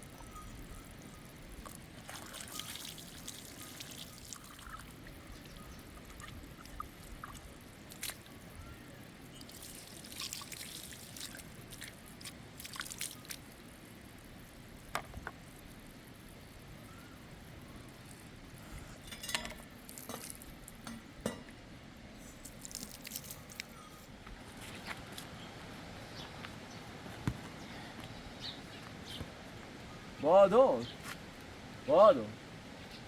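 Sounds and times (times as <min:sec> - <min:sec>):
water trickling and dripping: 0:00.0 - 0:21.6, 0:22.4 - 0:23.9.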